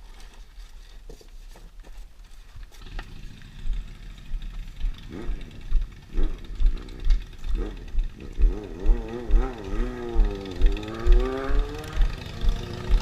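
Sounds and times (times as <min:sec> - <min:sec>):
rumbling and bumping on microphone: 0:01.2 - 0:13.0
small engine running: 0:02.8 - 0:13.0.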